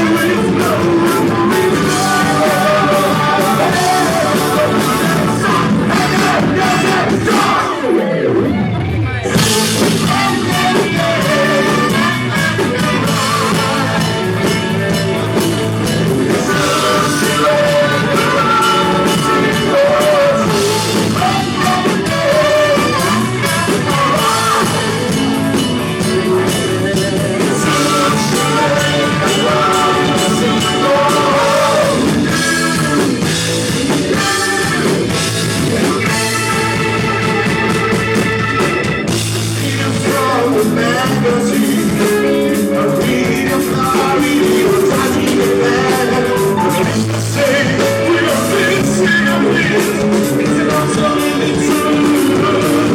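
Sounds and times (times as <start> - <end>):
person singing: 0.0 - 8.3, 9.2 - 37.9, 39.4 - 52.9
rock band playing live: 0.0 - 52.9.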